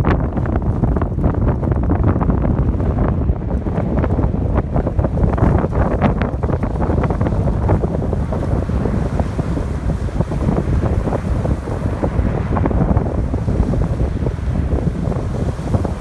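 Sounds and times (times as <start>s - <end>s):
wind buffeting microphone: 0.0s - 16.0s
ocean waves breaking: 5.0s - 16.0s.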